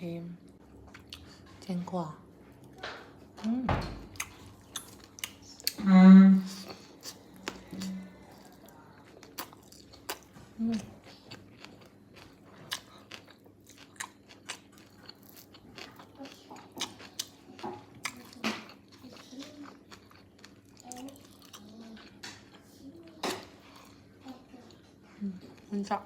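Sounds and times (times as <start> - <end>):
person chewing crunchy food: 4.1 - 5.8, 6.5 - 24.1.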